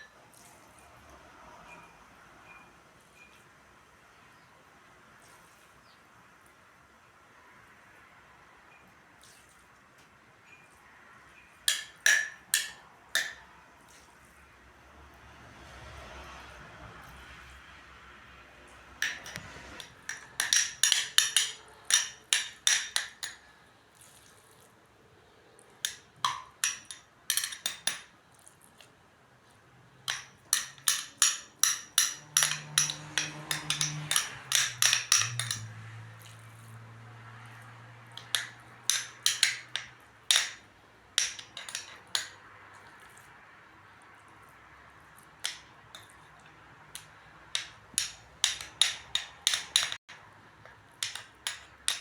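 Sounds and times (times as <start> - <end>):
glass and utensils clinking: 19.0 - 23.5, 25.9 - 28.1, 30.1 - 35.8, 38.2 - 40.6, 41.2 - 42.4, 51.0 - 52.0.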